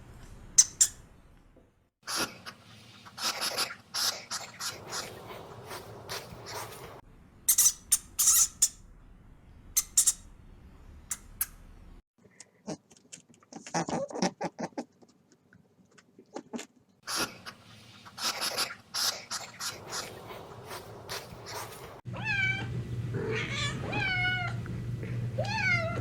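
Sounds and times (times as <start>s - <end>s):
small animal squeaks and clicks: 0.6s - 1.0s, 7.5s - 8.8s, 9.8s - 10.3s, 11.1s - 11.6s.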